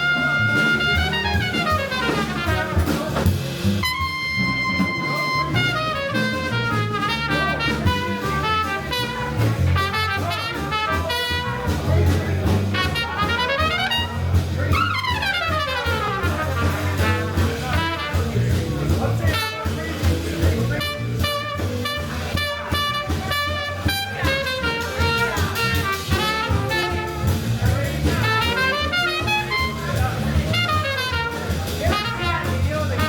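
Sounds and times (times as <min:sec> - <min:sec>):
bass: 0:00.0 - 0:33.0
drums: 0:00.0 - 0:33.0
trumpet melody: 0:00.0 - 0:33.0.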